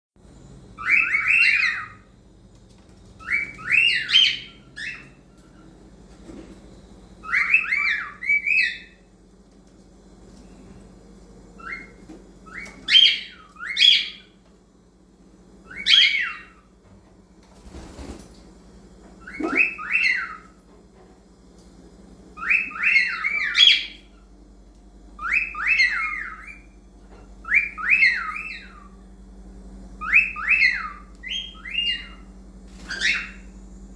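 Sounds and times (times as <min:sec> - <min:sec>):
cockatiel whistling warbling song: 0:00.8 - 0:02.1, 0:03.2 - 0:05.2, 0:07.2 - 0:09.0, 0:11.6 - 0:14.4, 0:15.6 - 0:16.7, 0:19.2 - 0:20.6, 0:22.4 - 0:24.1, 0:25.2 - 0:26.8, 0:27.4 - 0:28.9, 0:30.0 - 0:33.5.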